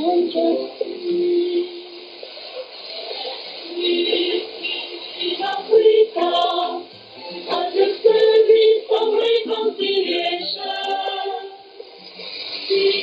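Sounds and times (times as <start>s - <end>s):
choral singing over radio: 0.0s - 13.0s.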